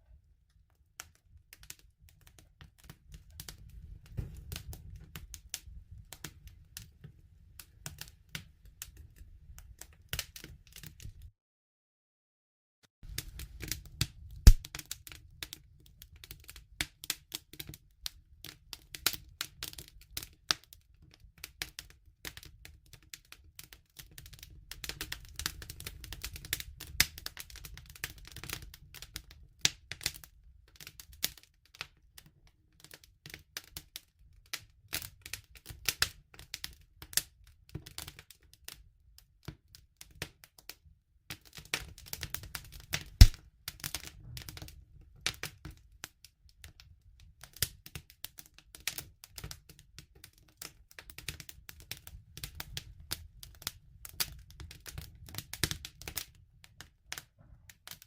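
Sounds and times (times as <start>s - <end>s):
campfire crackling and popping: 1.5s - 6.9s, 13.1s - 20.6s, 21.4s - 31.4s, 41.4s - 45.8s, 50.6s - 56.3s
low rumble of flames: 3.0s - 8.0s.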